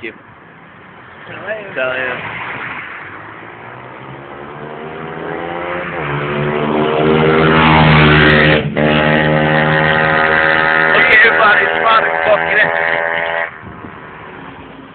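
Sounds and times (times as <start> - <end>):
motorbike engine revving: 3.6 - 13.6.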